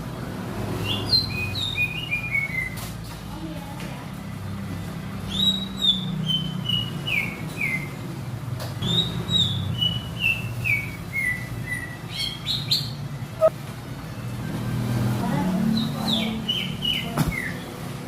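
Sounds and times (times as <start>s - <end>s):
bird singing whistled notes: 0.8s - 2.8s, 8.8s - 13.5s.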